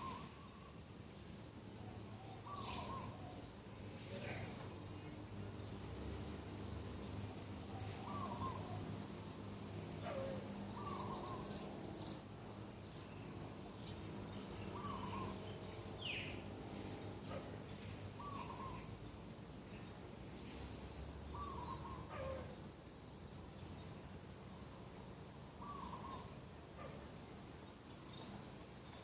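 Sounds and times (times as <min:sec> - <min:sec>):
small birds chirping: 0:01.9 - 0:24.5, 0:25.5 - 0:29.0
doves cooing: 0:02.2 - 0:03.4, 0:07.8 - 0:08.9, 0:10.0 - 0:11.5, 0:14.7 - 0:15.4, 0:18.2 - 0:18.9, 0:21.4 - 0:22.6, 0:25.6 - 0:26.3.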